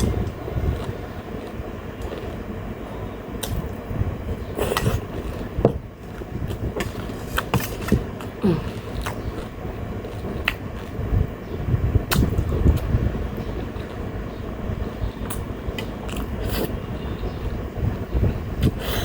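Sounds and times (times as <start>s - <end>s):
chewing and crunching food: 0.0s - 3.9s, 4.5s - 11.2s, 15.2s - 16.8s
electric fan: 0.0s - 19.0s.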